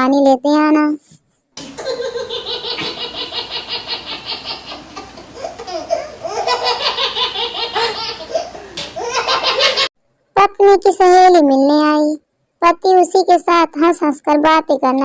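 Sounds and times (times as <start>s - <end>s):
hearty laughter: 1.7s - 9.9s.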